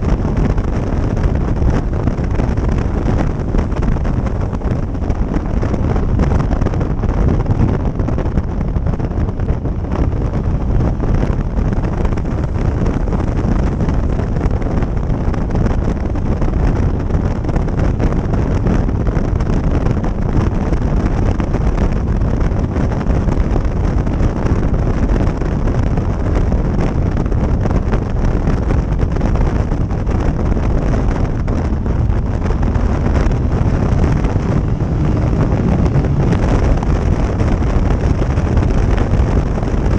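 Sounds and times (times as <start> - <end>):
motorcycle running: 0.0 - 39.9
wind buffeting microphone: 0.0 - 39.9.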